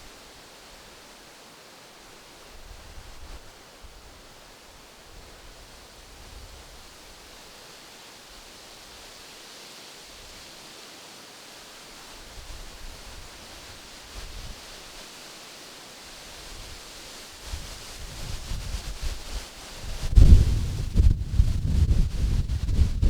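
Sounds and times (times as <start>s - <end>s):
wind rustling tree leaves: 0.0s - 23.0s
wind gusts on microphone: 17.4s - 23.0s.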